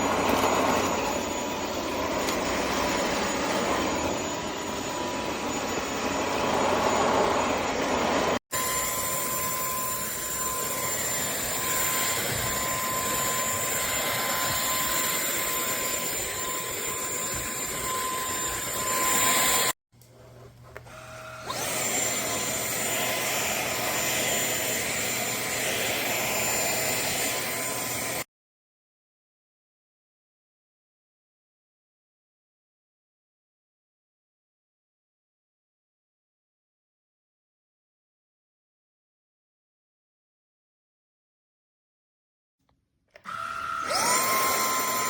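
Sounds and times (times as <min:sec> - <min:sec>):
stick vacuum whining: 0:00.0 - 0:28.2, 0:43.1 - 0:45.0.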